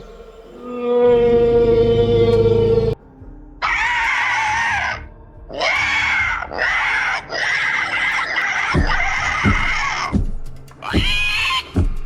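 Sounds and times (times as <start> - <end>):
shrill dinosaur screeches: 3.6 - 10.1.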